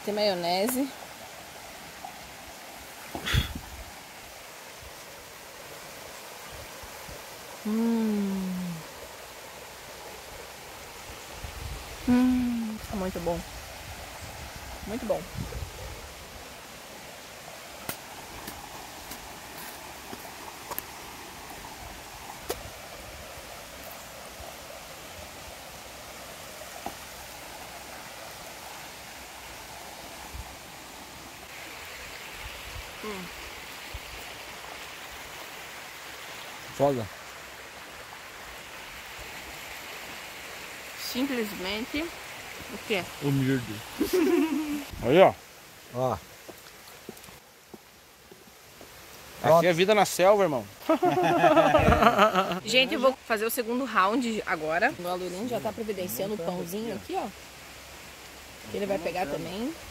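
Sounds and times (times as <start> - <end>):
outdoor hiss: 0.0 - 59.9
person humming mmm: 7.6 - 8.9, 12.0 - 12.8.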